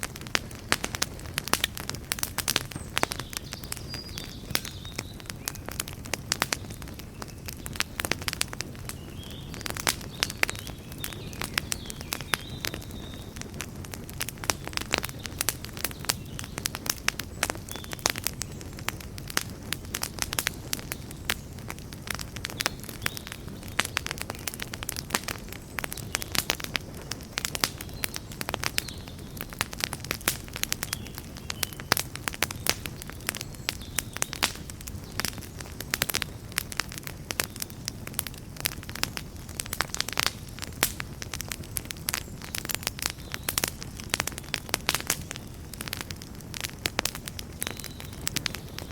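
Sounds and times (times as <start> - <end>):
campfire crackling: 0.0 - 48.9
low rumble of burning: 0.0 - 48.9.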